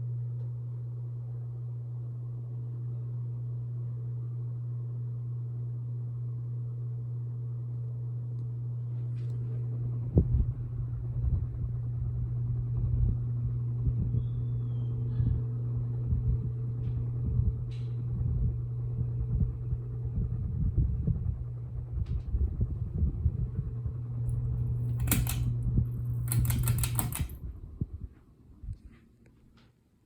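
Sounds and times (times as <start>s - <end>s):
ceiling fan motor hum: 0.0s - 30.0s
low rumbling thumps: 9.9s - 14.3s, 15.1s - 28.9s.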